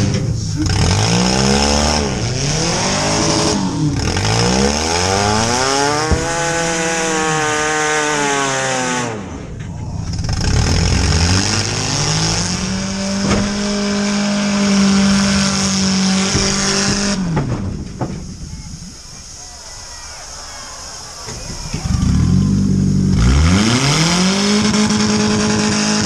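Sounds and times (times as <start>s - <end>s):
car engine revving: 0.0s - 19.4s, 21.0s - 26.0s
sharp knocks: 5.0s - 7.0s, 11.5s - 18.4s.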